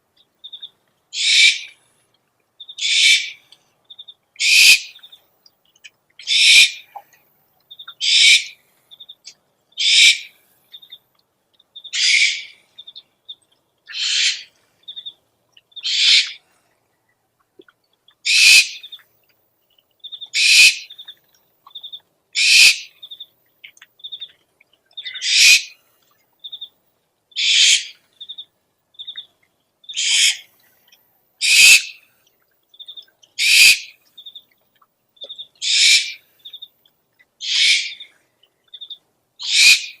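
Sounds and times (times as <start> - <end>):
rasping owl screech: 13.9 - 14.5, 37.4 - 38.0, 39.5 - 39.9.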